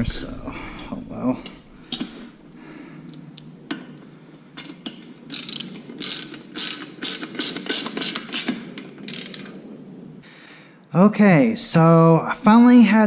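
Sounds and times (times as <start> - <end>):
ratchet wrench clicking: 5.3 - 9.5.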